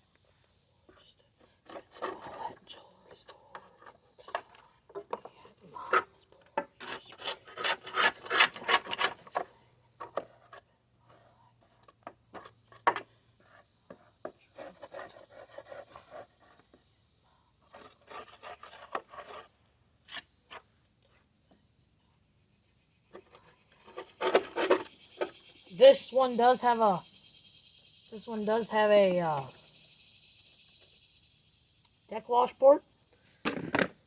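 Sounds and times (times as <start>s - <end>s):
scraper rasping on mower deck: 3.5s - 16.8s, 17.6s - 20.6s, 23.2s - 25.4s.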